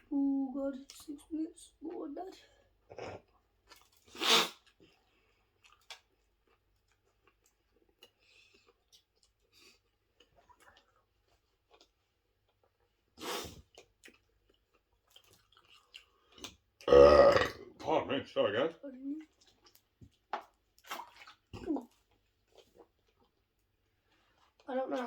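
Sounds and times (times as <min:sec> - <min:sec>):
person chewing food: 0:02.8 - 0:17.6, 0:19.2 - 0:24.7.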